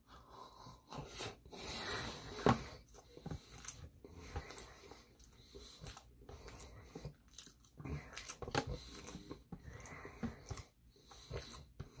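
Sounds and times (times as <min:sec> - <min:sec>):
wet chewing: 0:02.8 - 0:12.0.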